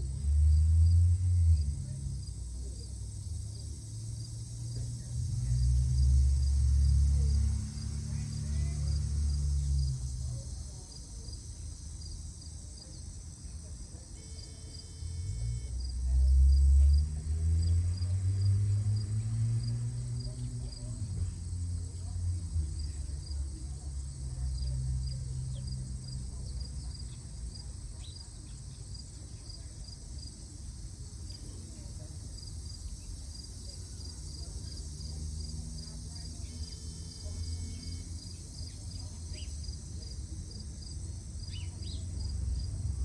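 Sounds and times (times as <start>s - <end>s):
insects trilling: 21.3s - 43.0s.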